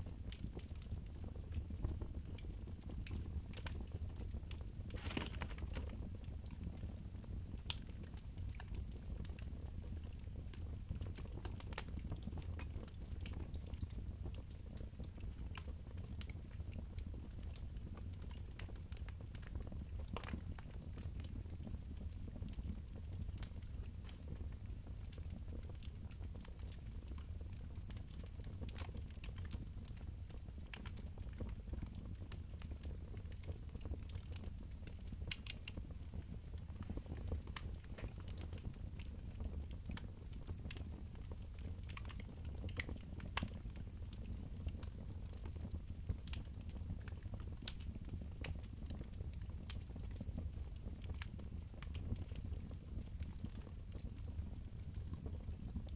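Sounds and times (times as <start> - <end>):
fire low rumble: 0.0 - 55.9
wood fire crackling: 0.0 - 55.9.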